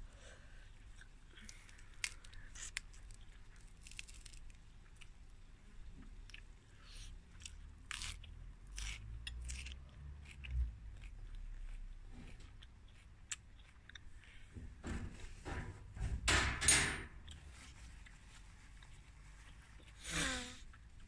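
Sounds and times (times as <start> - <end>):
person chewing crunchy vegetable: 0.7 - 5.2, 6.0 - 14.5.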